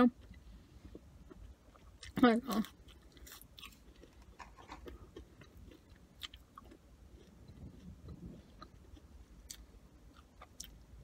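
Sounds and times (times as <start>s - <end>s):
chewing fries: 0.0s - 11.0s.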